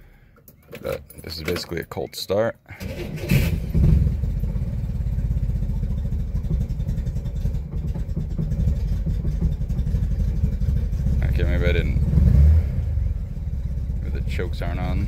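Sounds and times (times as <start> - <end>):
car engine idling: 3.1 - 15.0.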